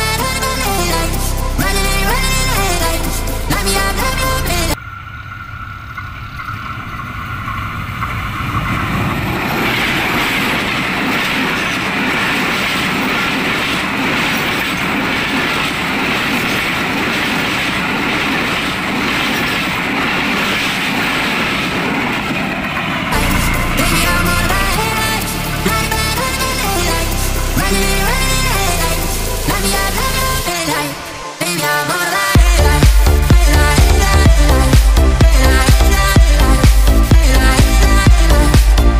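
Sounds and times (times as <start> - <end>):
train wheels clattering on rails: 5.2 - 23.4.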